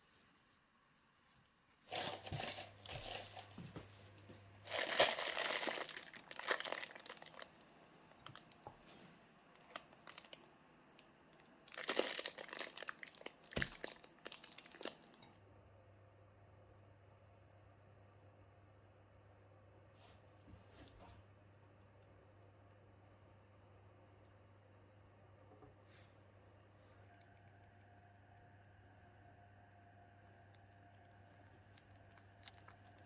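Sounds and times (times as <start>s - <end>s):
crinkly wrapping crumpled: 1.8s - 3.8s, 4.6s - 10.4s, 11.3s - 15.3s, 31.7s - 33.0s.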